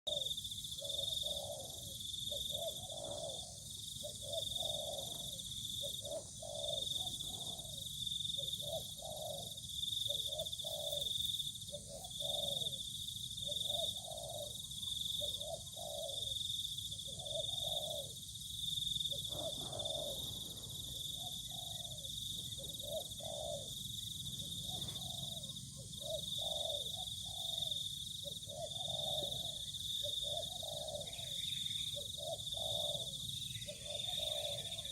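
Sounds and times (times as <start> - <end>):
bird's low call notes: 0.1 - 18.2, 19.1 - 34.9.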